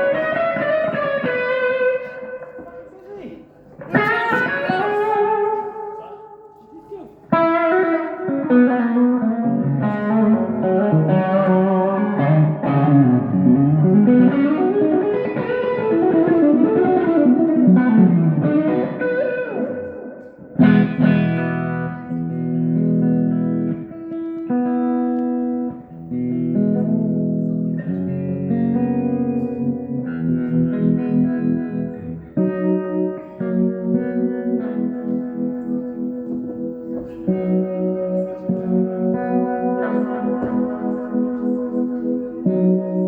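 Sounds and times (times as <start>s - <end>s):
electric guitar chords ringing: 0.0s - 6.6s, 7.2s - 43.0s
electric guitar lead lines: 0.0s - 43.0s.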